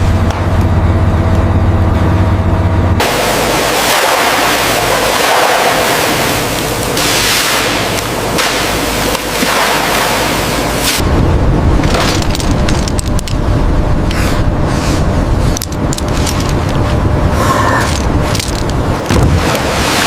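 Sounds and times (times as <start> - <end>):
boat engine droning: 0.0 - 20.0
water rushing: 3.0 - 11.0, 19.0 - 20.0.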